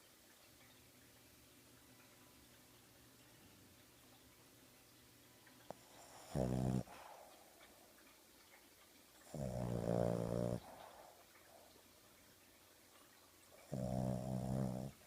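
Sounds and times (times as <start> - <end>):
dog snoring: 5.7 - 7.2, 9.2 - 11.0, 13.6 - 15.0.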